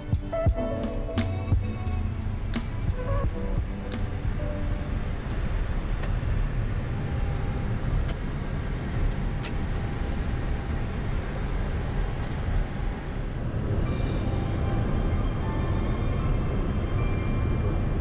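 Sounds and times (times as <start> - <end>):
low rumble of engines and wheels: 0.0 - 18.0.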